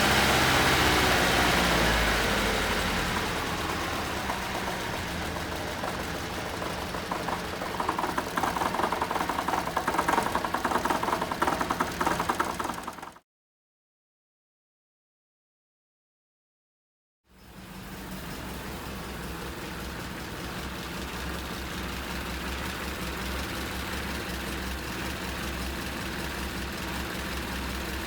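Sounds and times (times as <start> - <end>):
car engine running: 0.0 - 13.2
rapid engine ticking rattle: 0.0 - 13.2, 17.5 - 28.0.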